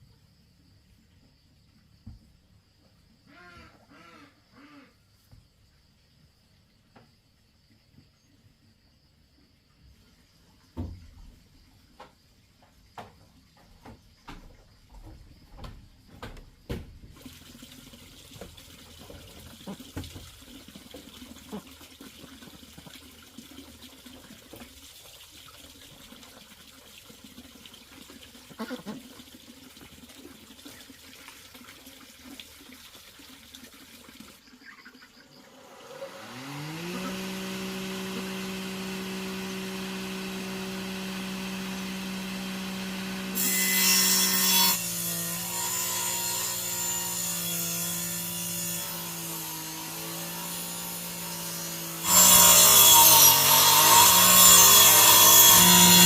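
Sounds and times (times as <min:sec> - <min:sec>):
power tool cutting wood: 0:35.5 - 0:56.0
power tool motor whining: 0:35.6 - 0:56.0.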